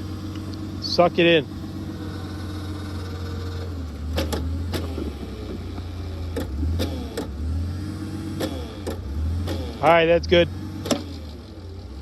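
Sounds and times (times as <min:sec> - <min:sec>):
auger engine running under load: 0:00.0 - 0:12.0.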